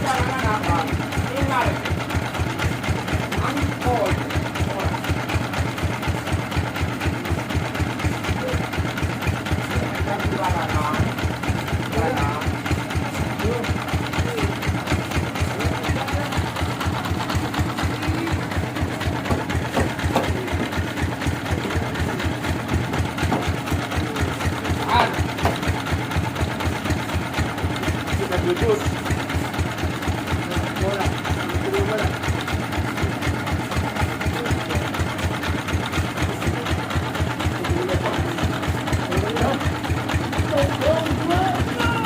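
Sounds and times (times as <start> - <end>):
sawmill engine thumping: 0.0 - 42.0
engine running with low thumping: 17.4 - 23.8.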